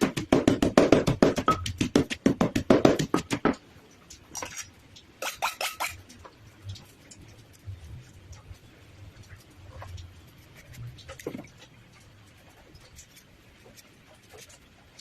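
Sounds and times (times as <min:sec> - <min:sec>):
pestle pounding in a mortar: 0:00.0 - 0:03.6.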